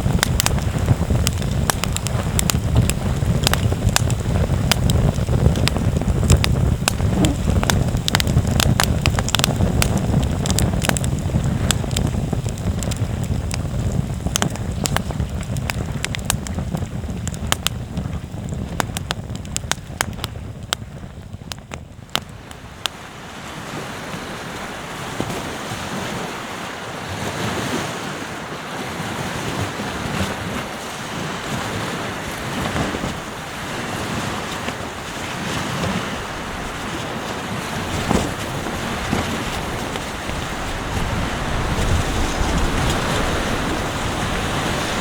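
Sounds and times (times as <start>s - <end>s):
ocean surf washing in: 0.0s - 15.3s, 22.3s - 45.0s
campfire crackling and popping: 0.0s - 23.1s, 32.4s - 45.0s
wind buffeting microphone: 0.0s - 45.0s.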